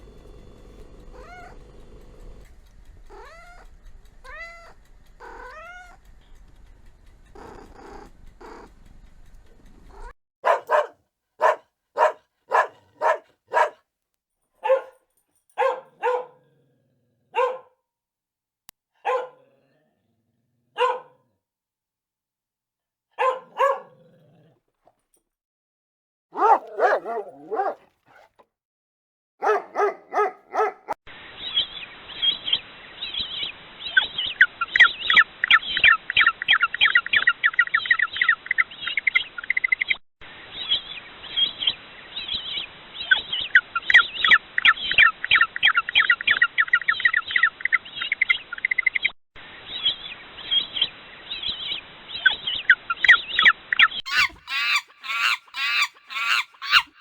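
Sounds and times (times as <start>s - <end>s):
dog barking: 10.0s - 13.8s, 14.6s - 15.0s, 15.6s - 16.5s, 17.3s - 17.8s, 19.0s - 19.5s, 20.8s - 21.3s, 23.2s - 24.1s, 26.3s - 28.4s, 29.4s - 31.0s, 54.1s - 57.0s
many birds chirping: 49.7s - 57.0s.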